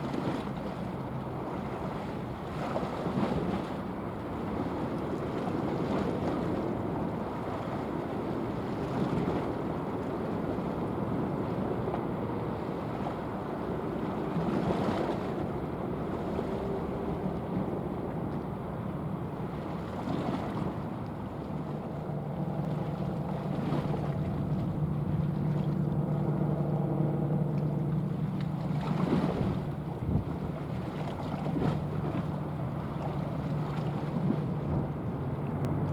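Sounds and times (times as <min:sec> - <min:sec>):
water noise: 0:00.0 - 0:35.9
ship engines droning: 0:06.8 - 0:35.9
low hum with overtones: 0:20.9 - 0:35.9
wind on microphone: 0:28.7 - 0:35.9.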